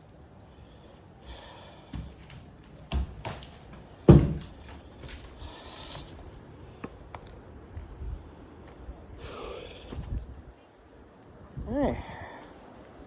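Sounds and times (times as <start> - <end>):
knocks and thumps in a room: 1.9 - 6.4.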